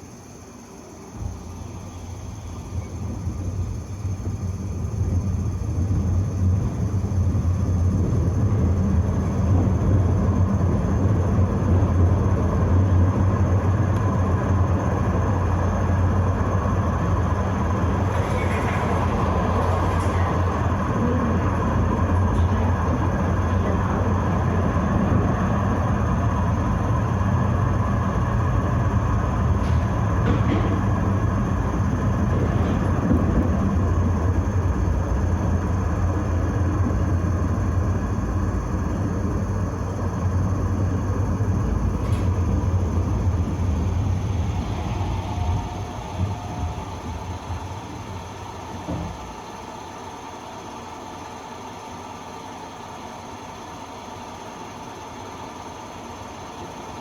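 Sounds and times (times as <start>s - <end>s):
tram rumbling along rails: 0.0s - 57.0s.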